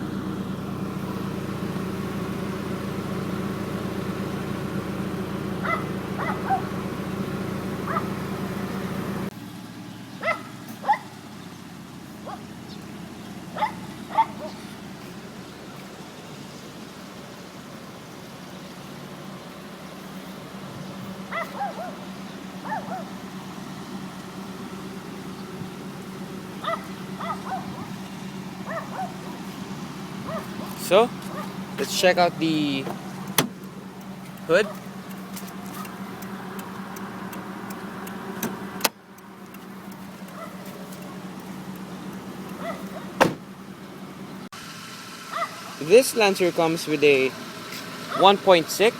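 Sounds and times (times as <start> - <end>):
dog barking: 5.6 - 6.7, 7.8 - 8.2, 10.2 - 11.1, 12.2 - 12.5, 13.5 - 14.6, 21.3 - 22.0, 22.6 - 23.2, 26.6 - 28.0, 28.6 - 29.3, 30.2 - 31.6, 40.3 - 40.6, 42.6 - 43.2, 45.3 - 45.8, 48.1 - 48.3
car hood click: 32.8 - 41.1, 42.5 - 43.5.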